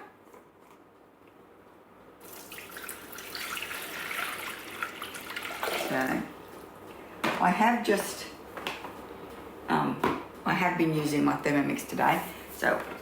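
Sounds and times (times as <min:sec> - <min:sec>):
water pouring into a bowl: 0:02.2 - 0:06.3.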